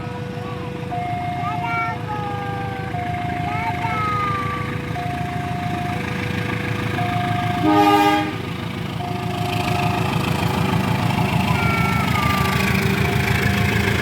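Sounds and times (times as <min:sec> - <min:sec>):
diesel locomotive engine idling: 0:00.0 - 0:14.0
steady high tone: 0:00.0 - 0:14.0
locomotive horn blast: 0:07.0 - 0:09.4.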